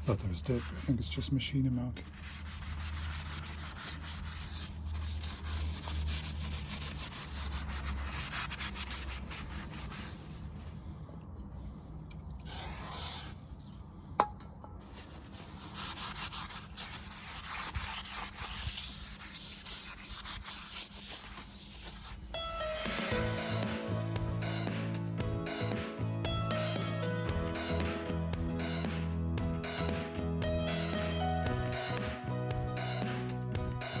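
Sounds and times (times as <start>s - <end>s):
hand scrubbing brake disc: 14.9s - 22.1s.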